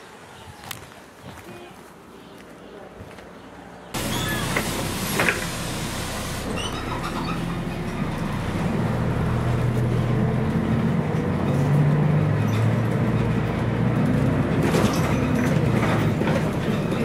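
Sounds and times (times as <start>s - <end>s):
bus diesel engine accelerating: 4.0s - 17.0s.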